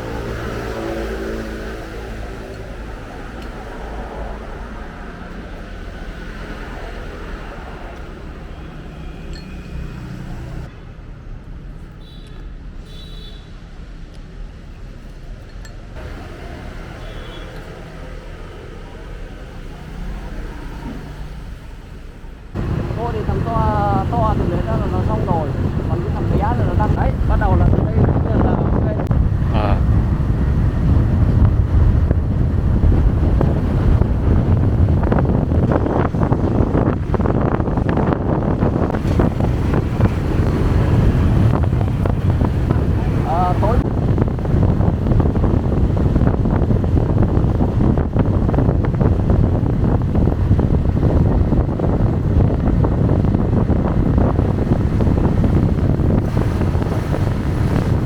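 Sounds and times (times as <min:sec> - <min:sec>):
wind buffeting microphone: 0:22.5 - 0:58.0.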